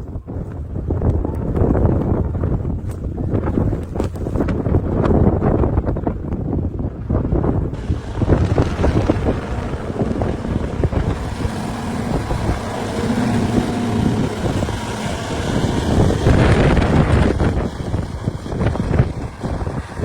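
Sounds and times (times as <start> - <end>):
motor vehicle engine rumbling: 7.3 - 20.0.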